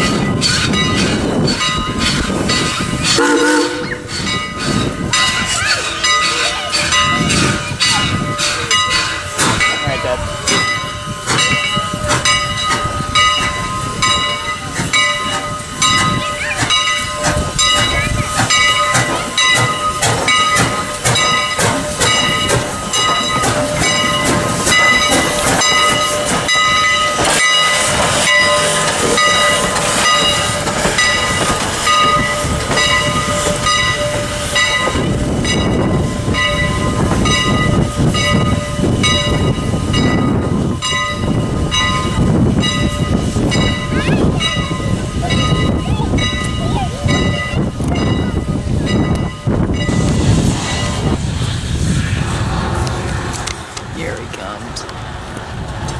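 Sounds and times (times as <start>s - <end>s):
train wheels clicking over rail joints: 0.0s - 55.9s
low rumble: 47.2s - 55.8s.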